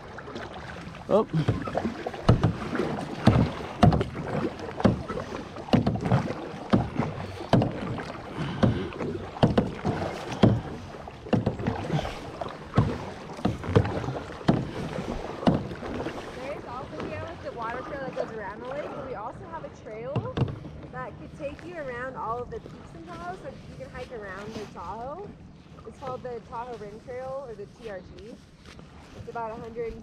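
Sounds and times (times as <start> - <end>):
paddle splashing in water: 0.0 - 30.0
water sloshing and dripping: 0.0 - 30.0.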